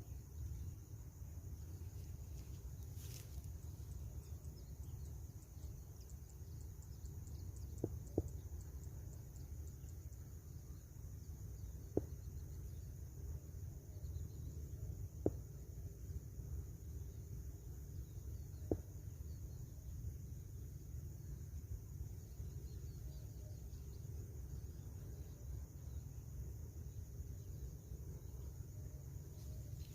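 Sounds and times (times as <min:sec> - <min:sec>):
insects trilling: 0:00.0 - 0:29.9.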